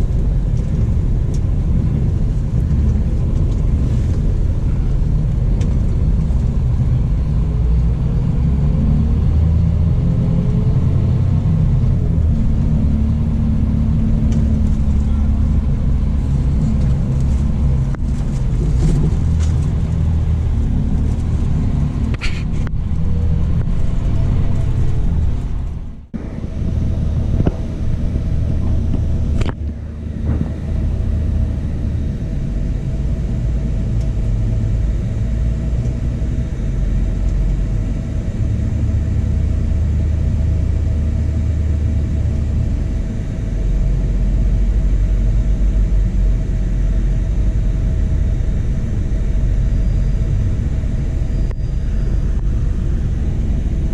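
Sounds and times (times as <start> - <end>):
coach engine and road rumble: 0.0 - 53.9
steady higher hum: 11.4 - 53.9.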